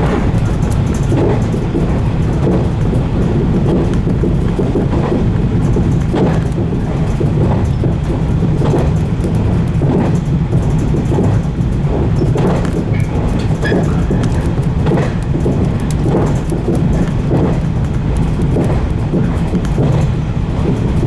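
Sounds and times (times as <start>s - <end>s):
rail-joint clacks: 0.0s - 21.0s
train rumbling along: 0.0s - 21.0s.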